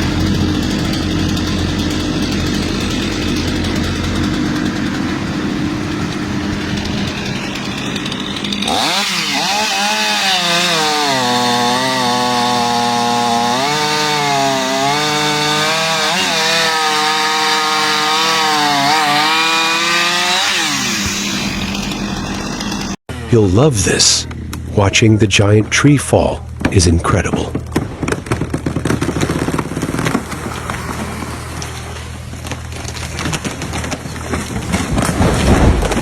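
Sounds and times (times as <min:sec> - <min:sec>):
low steady engine: 0:00.0 - 0:08.6, 0:23.1 - 0:36.0
chainsaw cutting wood: 0:00.0 - 0:23.3, 0:25.8 - 0:36.0.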